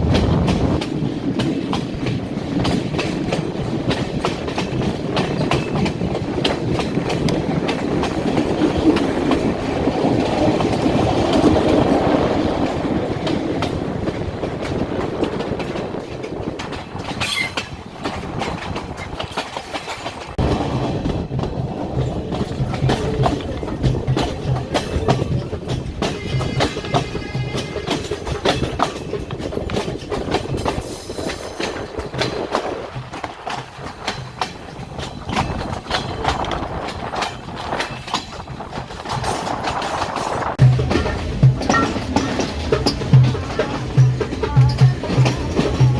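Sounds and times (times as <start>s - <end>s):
train rumbling on rails: 0.0s - 45.9s
wheels clicking over rail joints: 0.0s - 45.9s
brief high squeal: 17.2s - 17.7s.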